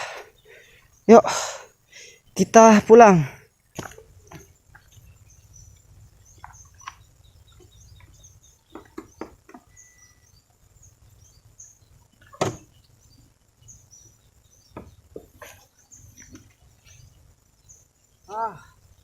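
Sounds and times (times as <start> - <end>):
sharp knocks and clicks: 8.7 - 9.7.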